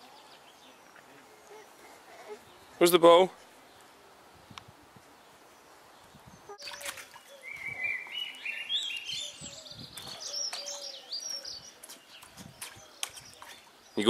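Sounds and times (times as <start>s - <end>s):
bird singing: 5.6s - 14.0s
water splashing in a pool: 6.5s - 8.4s.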